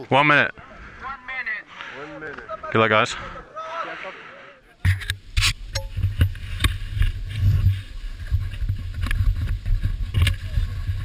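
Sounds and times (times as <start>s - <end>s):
wind buffeting microphone: 5.2s - 11.0s.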